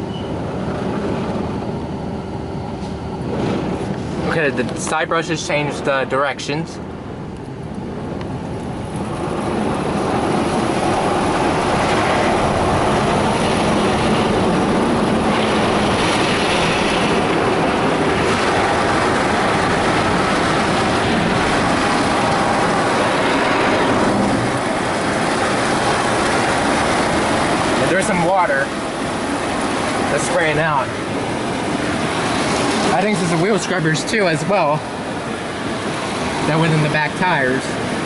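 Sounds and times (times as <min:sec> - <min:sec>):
car wash brushes and water spray: 0:08.4 - 0:38.0.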